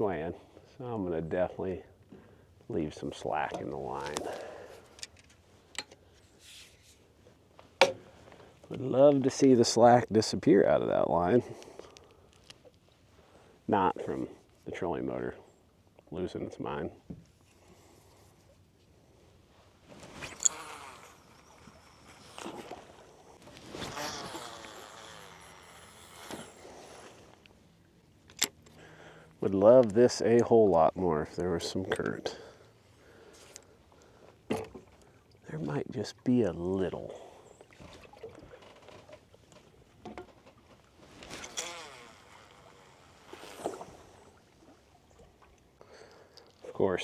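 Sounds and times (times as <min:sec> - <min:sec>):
fishing gear clicks and knocks: 0:03.4 - 0:09.3, 0:11.5 - 0:12.8, 0:19.9 - 0:27.6, 0:28.2 - 0:28.8, 0:29.4 - 0:32.3, 0:37.7 - 0:44.0
reel spool whirring: 0:41.3 - 0:44.0.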